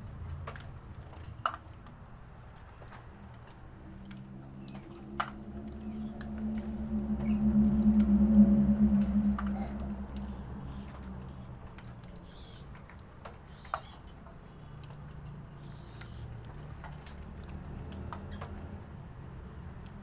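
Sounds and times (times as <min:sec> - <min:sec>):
light ticks and taps: 0:00.0 - 0:18.8
low steady hum: 0:02.8 - 0:13.3.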